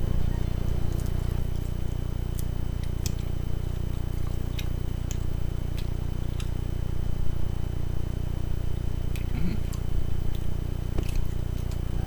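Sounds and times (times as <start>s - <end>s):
low hum: 0.0s - 12.0s
person chewing chicken wing: 0.7s - 6.7s, 9.1s - 12.0s.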